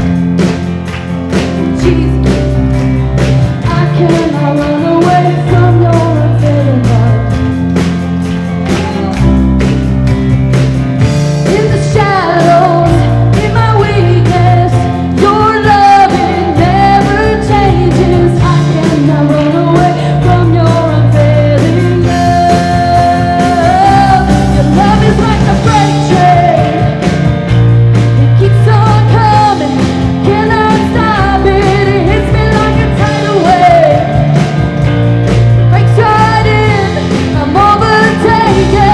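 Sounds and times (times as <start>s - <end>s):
live band playing rock song: 0.0s - 38.9s
person singing lead vocal: 3.6s - 7.4s, 8.7s - 9.4s, 11.4s - 27.1s, 28.2s - 34.4s, 35.7s - 38.9s.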